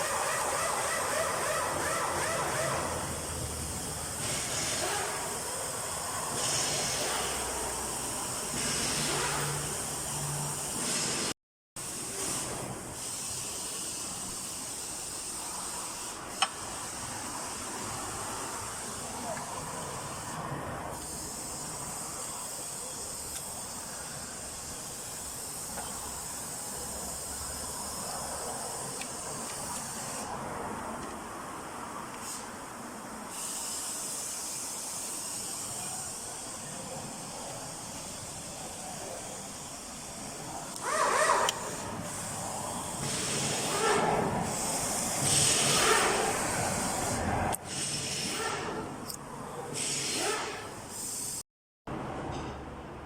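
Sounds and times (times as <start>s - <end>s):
high-pitched hiss: 9.6s - 20.4s, 21.0s - 41.0s.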